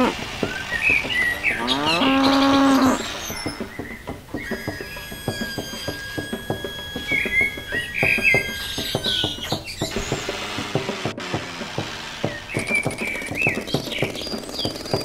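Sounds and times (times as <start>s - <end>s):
birds chirping: 0.0s - 15.0s
sharp clicks: 9.8s - 15.0s.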